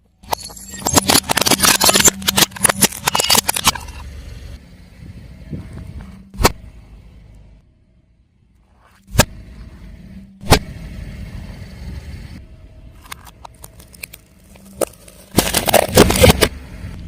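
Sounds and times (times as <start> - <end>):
low car rumble: 2.7 - 17.0
tyre crushing objects: 13.7 - 16.5.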